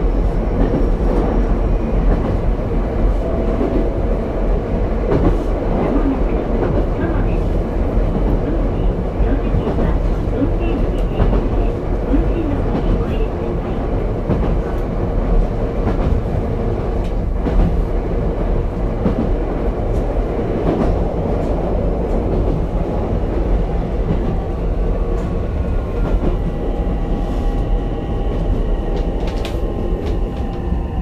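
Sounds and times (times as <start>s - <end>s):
train rolling rumble: 0.0s - 31.0s
rail-joint clicks: 28.9s - 30.8s.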